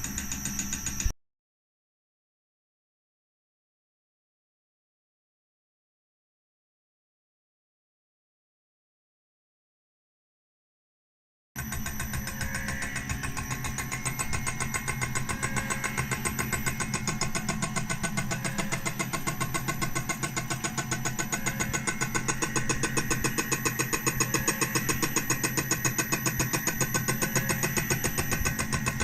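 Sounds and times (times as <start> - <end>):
milling machine humming and whining: 0.0 - 1.1, 11.6 - 29.0.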